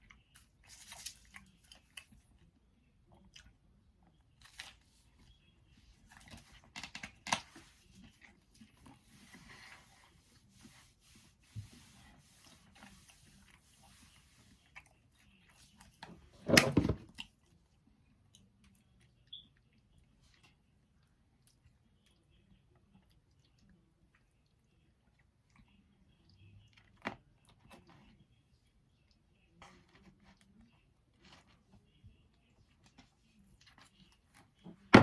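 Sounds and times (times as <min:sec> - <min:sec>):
pizza bitten and chewed: 0:00.0 - 0:10.5, 0:17.1 - 0:34.6.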